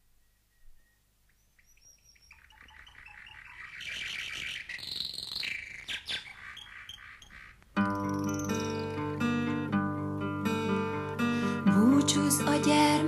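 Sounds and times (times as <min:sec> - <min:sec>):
birds chirping: 0:00.0 - 0:09.8
acoustic guitar: 0:07.8 - 0:13.0.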